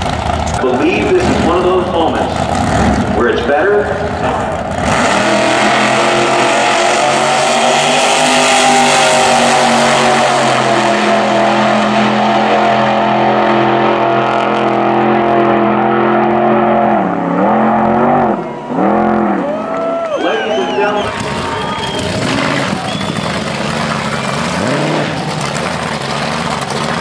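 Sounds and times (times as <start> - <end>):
drag car engine high revs: 0.0 - 27.0.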